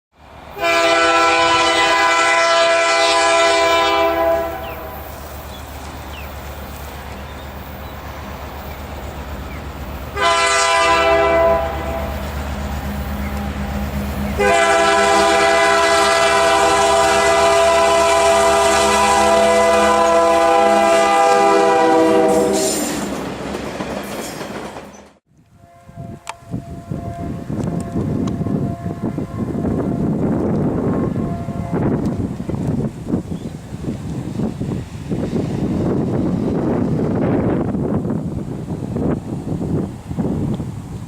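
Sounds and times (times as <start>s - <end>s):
locomotive air horn blasts: 0.6s - 5.1s, 10.1s - 12.2s, 12.9s - 23.0s, 25.5s - 29.7s, 30.9s - 32.1s
diesel engine rumbling: 4.7s - 16.4s.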